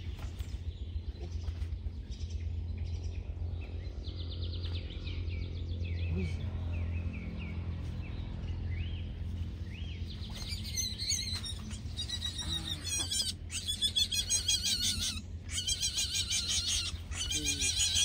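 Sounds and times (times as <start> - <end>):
birds chirping: 0.0 - 18.0
steady low hum: 0.0 - 18.0.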